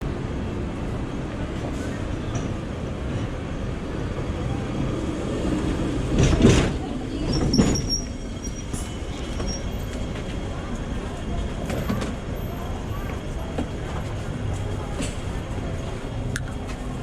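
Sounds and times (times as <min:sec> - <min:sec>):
tram wheels rumbling on rails: 0:00.0 - 0:17.0
tram clattering: 0:00.1 - 0:17.0
high wheel squeal: 0:07.4 - 0:09.9.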